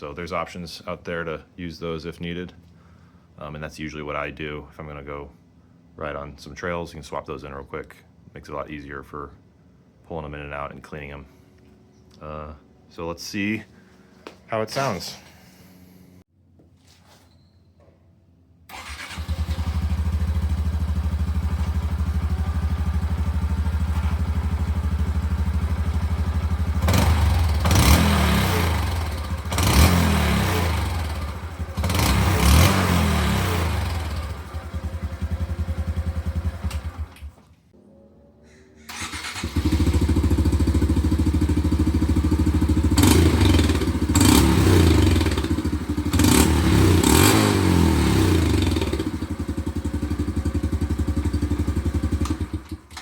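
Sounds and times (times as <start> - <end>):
motorcycle engine idling and revving: 18.7 - 37.2, 38.9 - 53.0.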